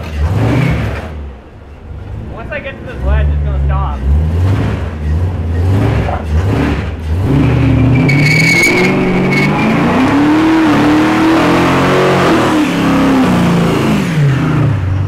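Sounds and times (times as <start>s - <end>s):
tyres spinning: 0.0s - 11.9s
truck engine revving: 0.0s - 15.0s
tyre squeal: 7.3s - 10.7s.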